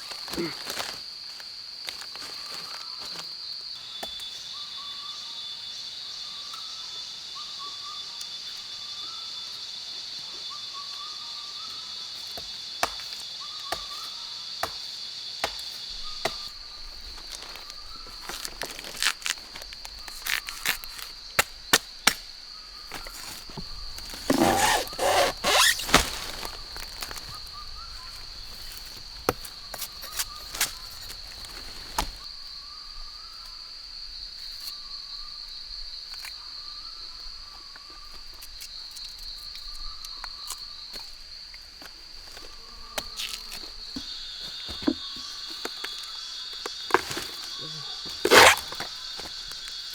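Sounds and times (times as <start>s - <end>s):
lower insect drone: 0.0s - 21.3s
insects droning high: 0.0s - 49.9s.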